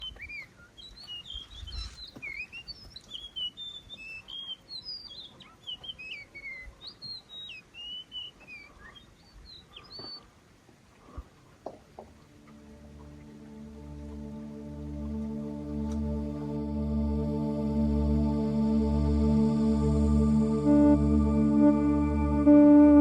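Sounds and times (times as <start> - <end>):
songbirds chirping and singing: 0.0 - 10.3.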